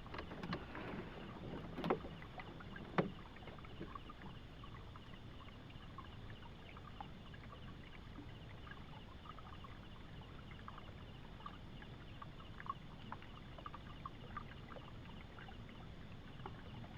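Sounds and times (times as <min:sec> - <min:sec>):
river water flowing: 0:00.0 - 0:05.0
small splashes and drips: 0:00.0 - 0:11.6.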